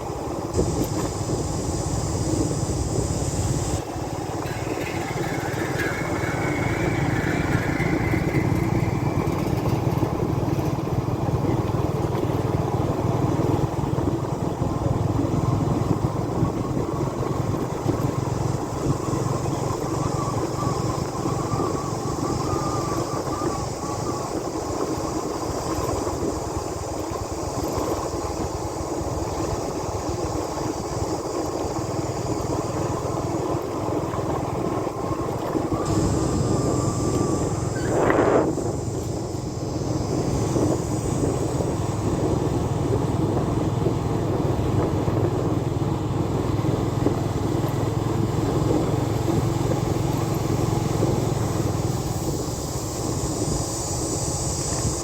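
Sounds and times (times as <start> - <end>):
motorbike engine running: 0.0 - 55.0.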